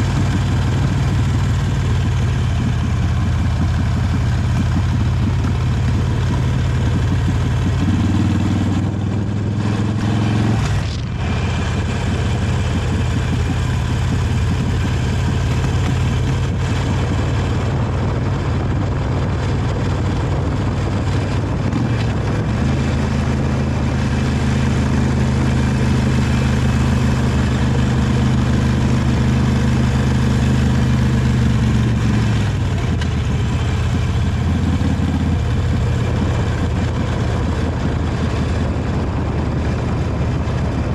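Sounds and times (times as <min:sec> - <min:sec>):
motorcycle engine on the road: 0:00.0 - 0:40.9.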